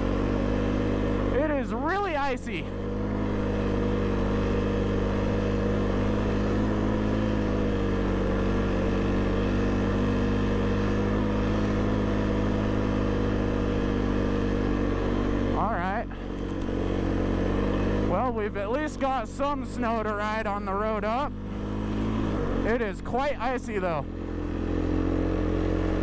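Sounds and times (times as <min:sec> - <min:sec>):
snow vehicle engine running: 0:00.0 - 0:26.0.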